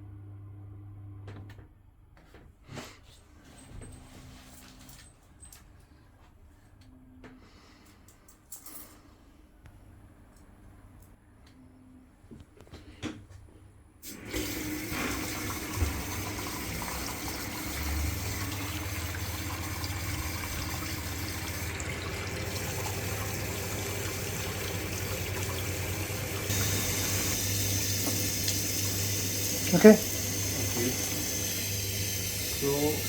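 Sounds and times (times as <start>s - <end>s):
tap water running into sink: 14.0s - 33.0s.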